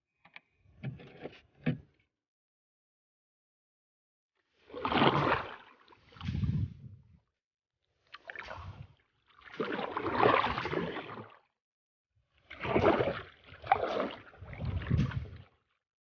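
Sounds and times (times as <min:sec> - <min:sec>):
wind and water bursts: 0:04.7 - 0:07.1, 0:12.5 - 0:15.6.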